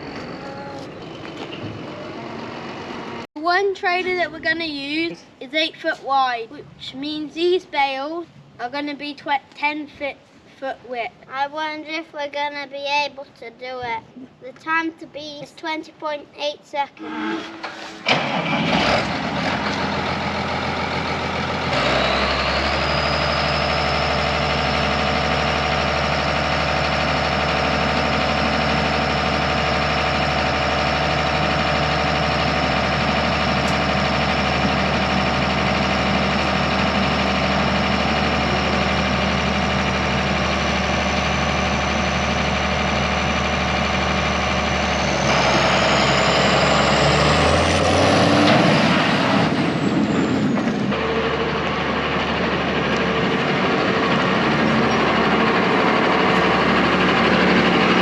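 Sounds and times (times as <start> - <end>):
high engine whine: 0.0 - 3.3, 17.0 - 58.0
tractor engine running: 0.0 - 5.0, 17.6 - 58.0.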